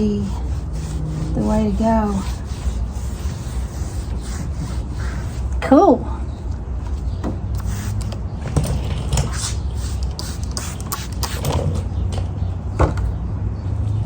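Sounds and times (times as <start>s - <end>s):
rubbing on wood: 0.0s - 5.9s
steady low hum: 0.0s - 13.9s.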